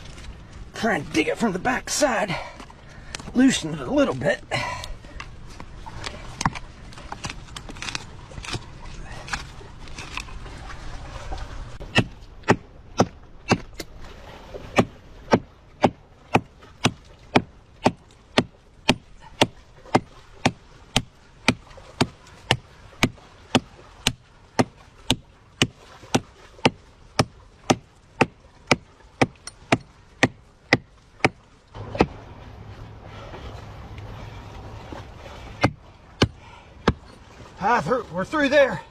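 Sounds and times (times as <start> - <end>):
hand tool chopping tree root: 11.9 - 13.9, 14.7 - 32.2, 35.6 - 37.1.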